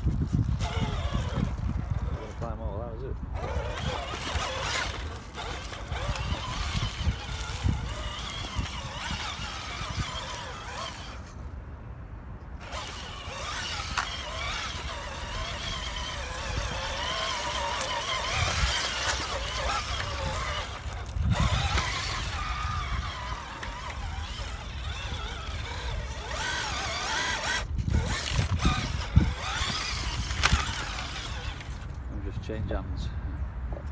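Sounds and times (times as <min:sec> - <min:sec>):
rc car electric motor whining: 0:00.0 - 0:11.5, 0:12.6 - 0:32.0.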